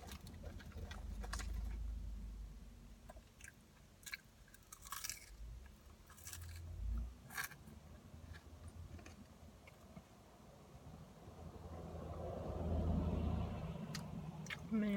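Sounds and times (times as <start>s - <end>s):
person chewing and crunching: 3.1s - 9.8s.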